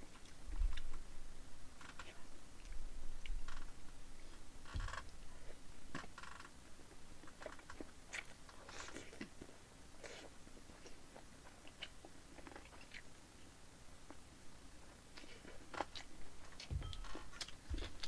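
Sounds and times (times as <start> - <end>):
wet chewing and smacking: 15.1 - 18.0.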